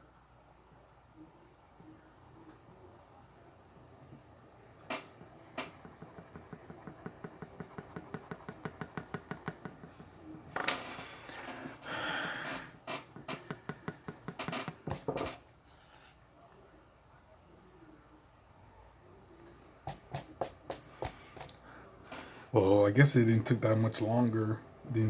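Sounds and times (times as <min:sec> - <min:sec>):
drawing tool scratching paper: 0:04.9 - 0:10.2, 0:13.1 - 0:15.4.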